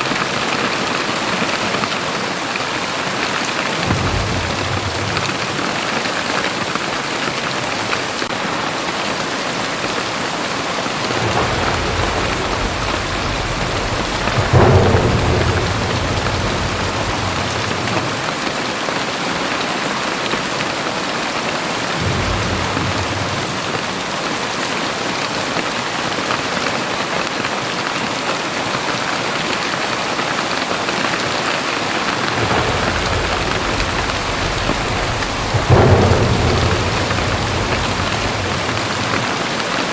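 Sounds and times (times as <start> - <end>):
heavy rain falling: 0.0 - 39.9
thunder rumbling: 3.4 - 8.3, 9.9 - 19.0, 21.8 - 25.1, 32.0 - 39.9.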